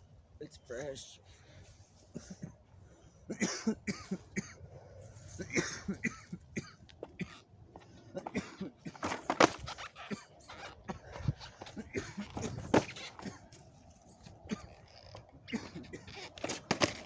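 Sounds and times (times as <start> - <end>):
person coughing: 2.1 - 2.6, 3.3 - 4.6, 5.4 - 7.4, 8.2 - 9.0, 11.8 - 13.5, 15.5 - 16.2.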